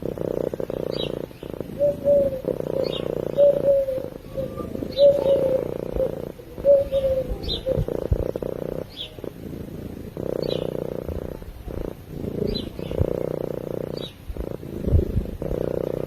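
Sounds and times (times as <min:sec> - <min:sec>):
cat purring: 0:00.0 - 0:16.0
faint high chirps: 0:01.0 - 0:06.1.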